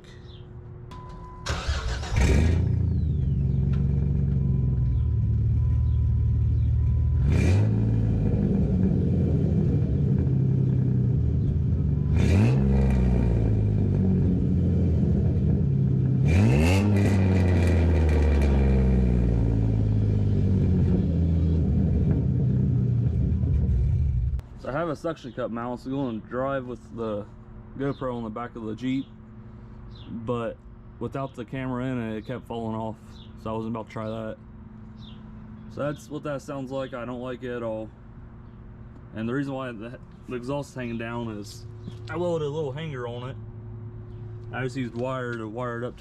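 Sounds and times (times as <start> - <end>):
raspy car exhaust revving: 5.0 - 24.4.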